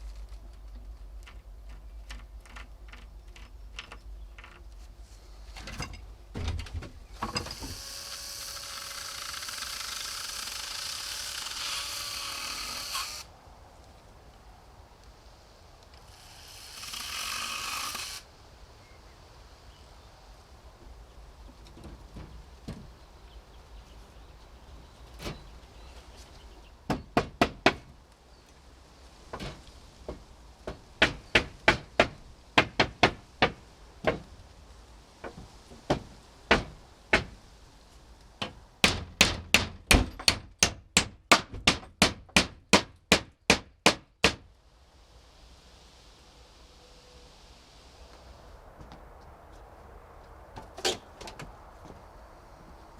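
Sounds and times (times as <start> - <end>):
hammer striking wood: 26.9 - 27.9, 30.7 - 34.2, 35.9 - 37.4, 38.4 - 44.4.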